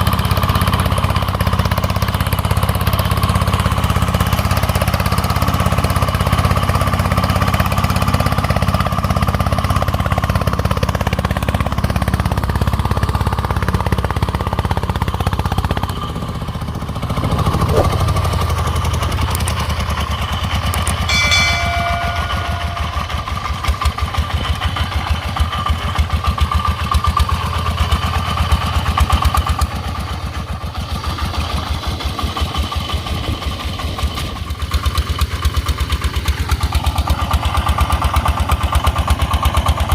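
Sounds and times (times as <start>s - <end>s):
single-cylinder diesel engine running: 0.0s - 21.6s, 22.6s - 39.9s
short pitched tone: 21.0s - 23.7s.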